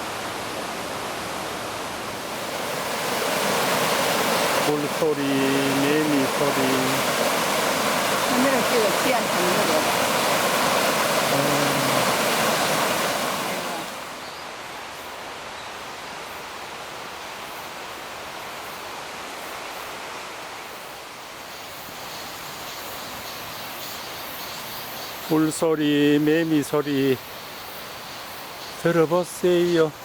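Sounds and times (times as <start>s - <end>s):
faint cicadas buzzing: 0.0s - 30.0s
waterfall rushing: 1.7s - 14.2s.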